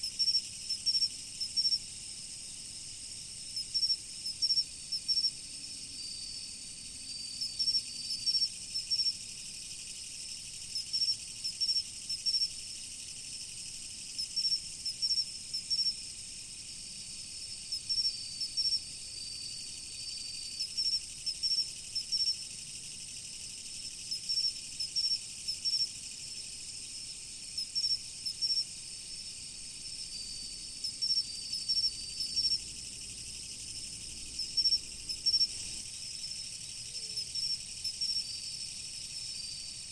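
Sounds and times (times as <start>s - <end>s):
insect chorus: 0.0s - 39.9s
insect trill: 0.0s - 39.9s
insect short chirps: 16.8s - 39.9s.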